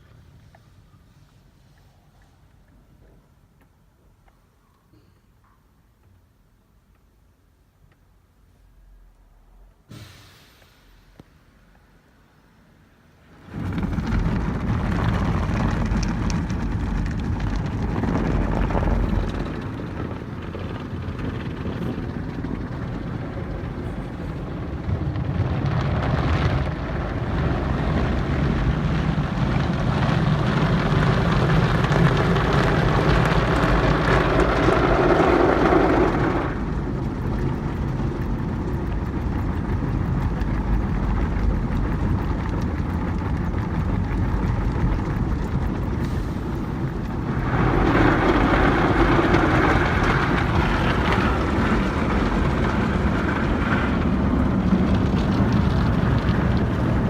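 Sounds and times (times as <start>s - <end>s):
car wash spraying water: 13.2s - 57.0s.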